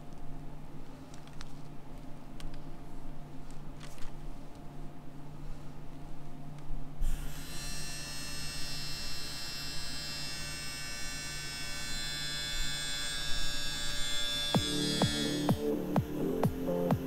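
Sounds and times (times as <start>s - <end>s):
low mains-like hum: 0.0s - 17.0s
buzzing electronic drone: 7.0s - 17.0s.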